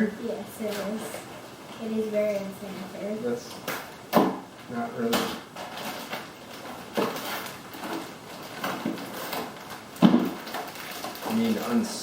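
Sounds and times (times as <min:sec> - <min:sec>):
packaging scraping and knocking: 0:05.1 - 0:12.0.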